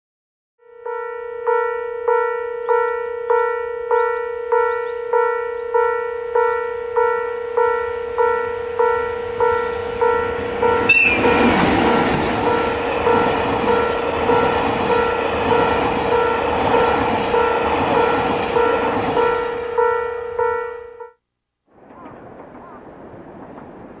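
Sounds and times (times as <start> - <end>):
train horn blast: 0.6 - 21.2
train wheels rumbling on rail: 6.5 - 20.1.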